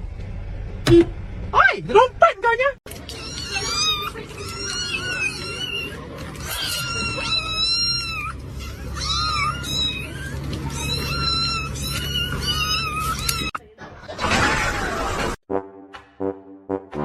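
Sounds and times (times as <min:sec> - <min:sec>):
cat meowing: 0:03.1 - 0:13.6.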